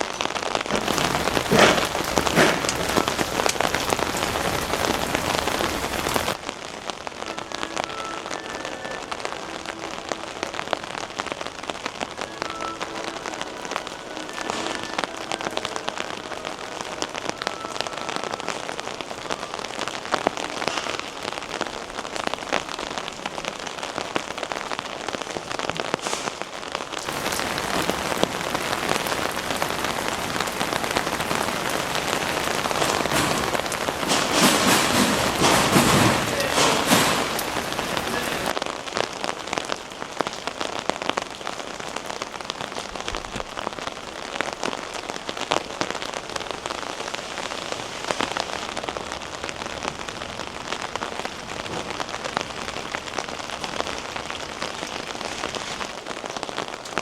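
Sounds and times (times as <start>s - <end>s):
rain on an umbrella: 0.0s - 57.0s
rushing hiss: 27.1s - 38.6s, 45.9s - 49.7s.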